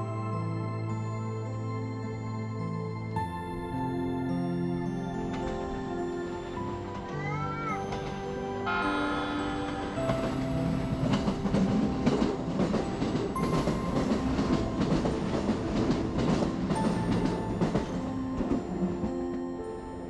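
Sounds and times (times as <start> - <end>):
background music: 0.0 - 20.0
train rumbling: 0.0 - 20.0
wheels clacking over rail joints: 5.2 - 20.0.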